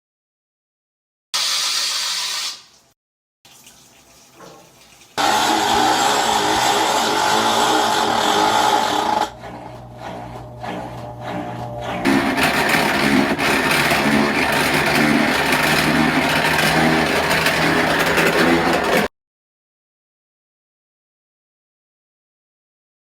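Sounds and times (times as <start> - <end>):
washing machine water rushing: 3.5 - 18.2
washing machine motor hum: 3.5 - 19.1.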